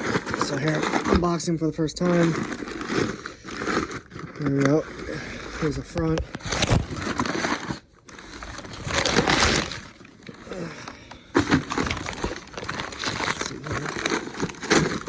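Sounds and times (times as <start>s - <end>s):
scrapes: 0.0s - 10.5s
packaging rustling and crinkling: 0.0s - 15.0s.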